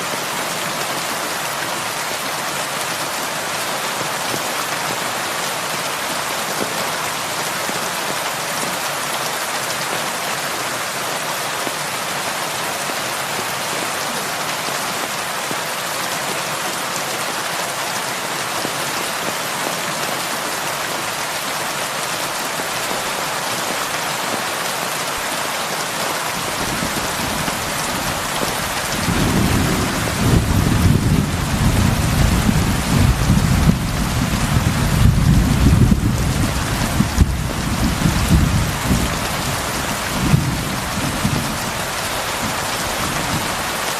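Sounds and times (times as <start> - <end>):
heavy rain: 0.0 - 43.9
low thunder rumble: 26.4 - 41.7.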